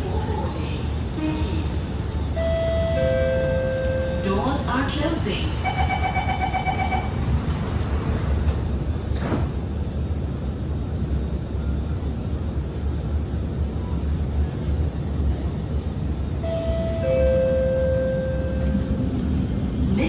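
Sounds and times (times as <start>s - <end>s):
train rumbling: 0.0s - 20.0s
train clunk: 4.3s - 10.0s.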